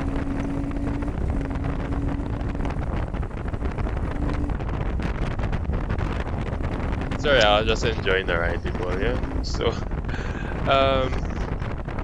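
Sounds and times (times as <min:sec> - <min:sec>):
motorcycle engine running: 0:00.0 - 0:04.7
wind rushing over microphone: 0:00.0 - 0:12.0.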